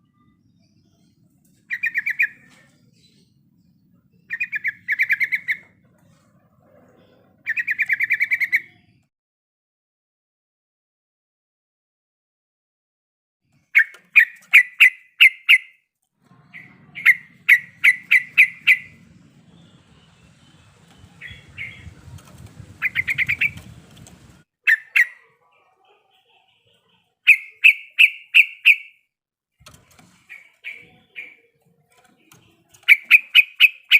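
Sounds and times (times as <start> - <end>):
bird calling sharp notes: 13.8 - 15.8, 16.5 - 22.0, 22.8 - 24.0, 24.6 - 25.4, 27.2 - 29.0, 30.2 - 31.6, 32.6 - 33.9
faint low rumble: 16.2 - 24.4.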